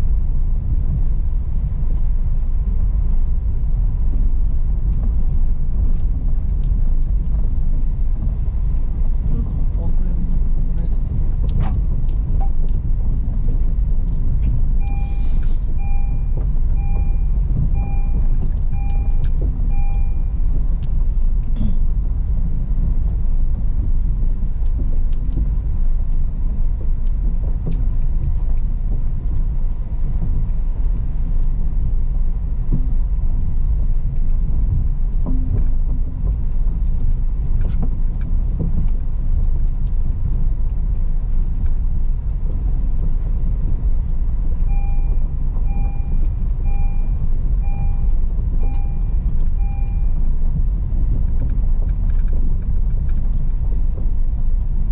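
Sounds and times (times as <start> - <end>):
car rumbling on rocky road: 0.0 - 54.9
electronic warning chime beeping: 14.8 - 20.3, 44.7 - 50.2.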